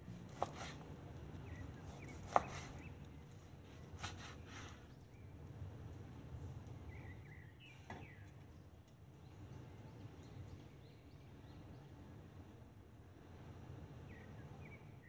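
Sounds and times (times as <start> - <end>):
low steady hum: 0.0 - 15.0
faint bird chirps: 6.7 - 12.0.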